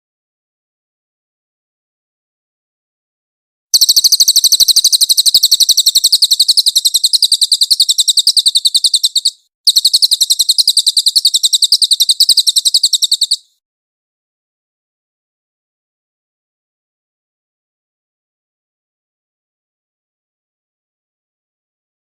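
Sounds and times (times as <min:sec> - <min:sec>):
songbird rapid trill: 0:03.8 - 0:13.6.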